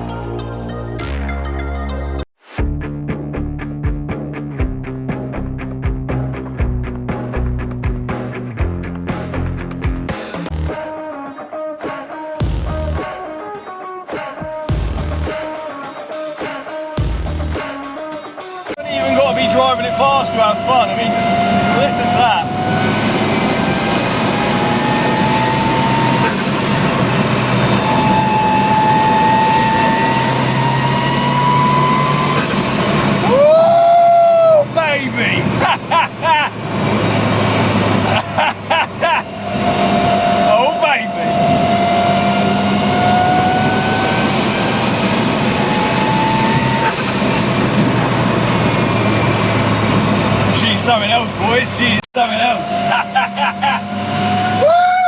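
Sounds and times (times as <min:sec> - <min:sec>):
turbocharged car engine accelerating: 0:18.8 - 0:54.8.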